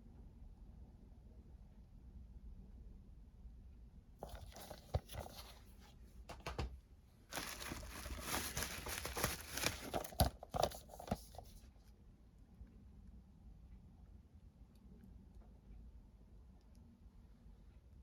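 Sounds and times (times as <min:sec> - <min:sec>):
packaging crinkling and tearing: 0:07.3 - 0:11.5.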